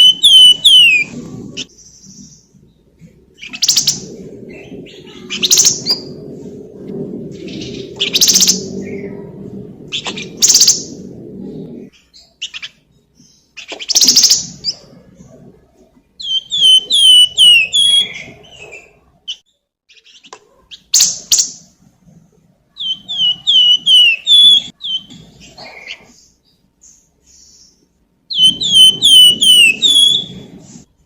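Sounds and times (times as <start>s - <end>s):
bird whistling song: 0.0s - 2.5s, 3.4s - 6.2s, 7.4s - 9.2s, 9.9s - 11.0s, 12.0s - 14.9s, 16.2s - 19.4s, 22.8s - 30.6s
harsh rasping bird calls: 0.0s - 2.5s, 16.2s - 21.6s, 22.8s - 30.5s.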